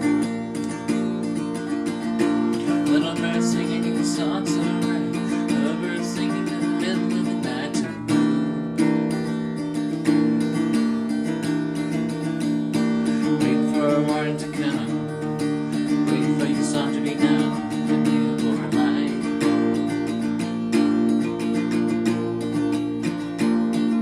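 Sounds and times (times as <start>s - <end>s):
acoustic guitar strumming: 0.0s - 24.0s.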